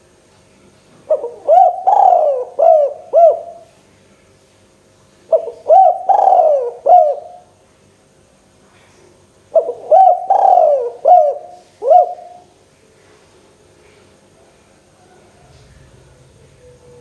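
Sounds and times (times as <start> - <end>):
dove cooing: 1.1 - 3.7, 5.3 - 7.5, 9.5 - 12.5.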